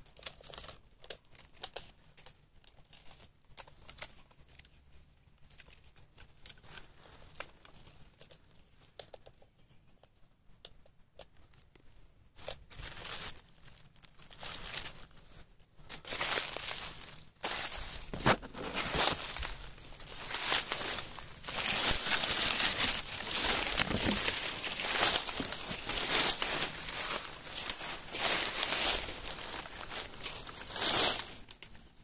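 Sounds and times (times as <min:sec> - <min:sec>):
footsteps through dry leaves: 0:12.4 - 0:31.6
twigs snapping: 0:16.0 - 0:31.7.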